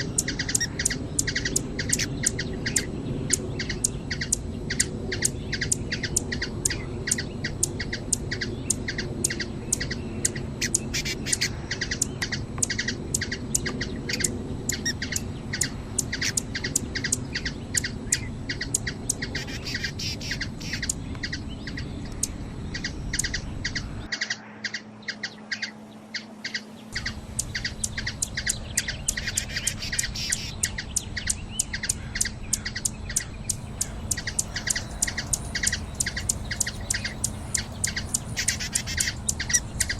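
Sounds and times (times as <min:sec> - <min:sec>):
hummingbird chip notes: 0:26.9 - 0:31.4, 0:33.5 - 0:39.9
low background hum: 0:33.2 - 0:39.9.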